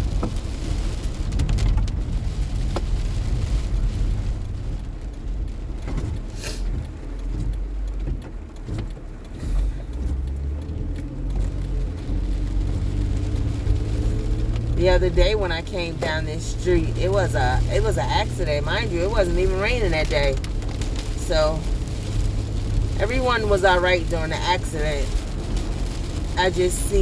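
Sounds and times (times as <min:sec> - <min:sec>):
engine and tyre rumble: 0:00.0 - 0:27.0
brief hiss: 0:06.3 - 0:06.7.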